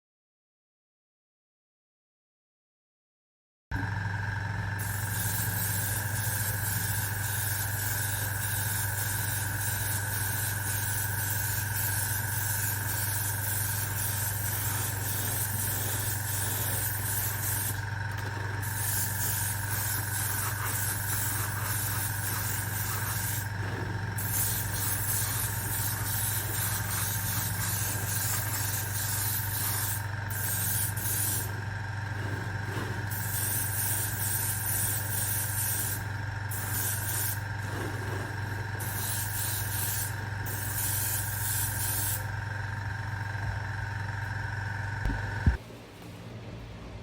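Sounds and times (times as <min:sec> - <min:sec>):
airbrush compressor humming: 0:03.7 - 0:45.6
air spraying from airbrush: 0:04.8 - 0:42.4.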